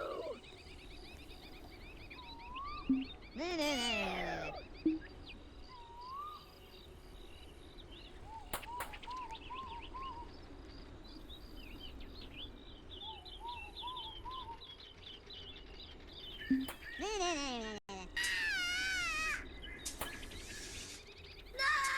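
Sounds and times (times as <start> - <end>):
small birds singing: 0.0 - 21.9.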